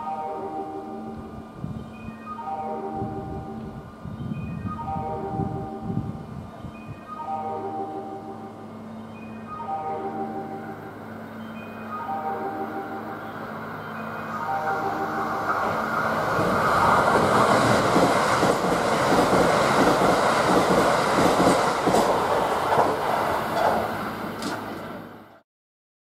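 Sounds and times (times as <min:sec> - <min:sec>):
train wheels clattering over rail joints: 0:16.4 - 0:24.9.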